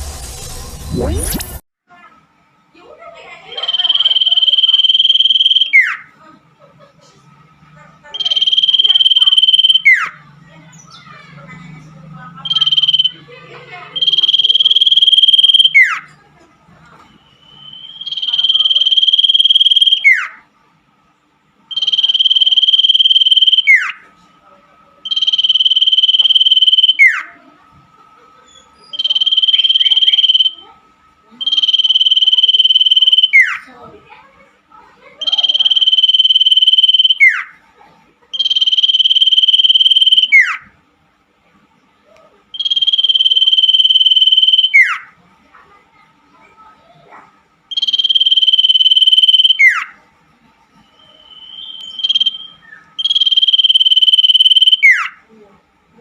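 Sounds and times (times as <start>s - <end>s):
bird trilled call: 3.6s - 6.1s, 8.2s - 10.2s, 12.4s - 13.2s, 14.0s - 16.1s, 17.6s - 20.4s, 21.7s - 24.0s, 25.1s - 27.3s, 31.4s - 33.6s, 35.2s - 37.6s, 38.4s - 40.7s, 42.6s - 45.1s, 47.7s - 50.0s, 51.0s - 55.2s.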